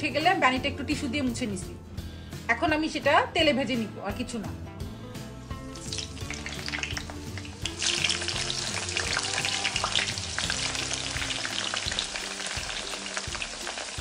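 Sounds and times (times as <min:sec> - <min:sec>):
eggplant sizzling in hot oil: 0:05.4 - 0:14.0.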